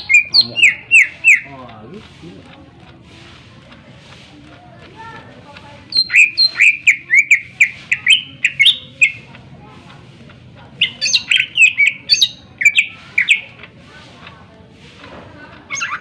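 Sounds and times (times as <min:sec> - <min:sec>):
bird singing whistled notes: 0:00.0 - 0:01.5, 0:05.9 - 0:09.3, 0:10.8 - 0:13.5.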